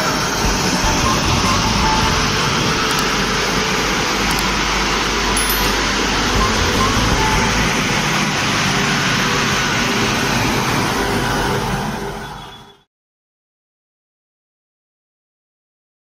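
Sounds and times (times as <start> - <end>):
train wheels rumbling on rails: 0.0 - 12.1.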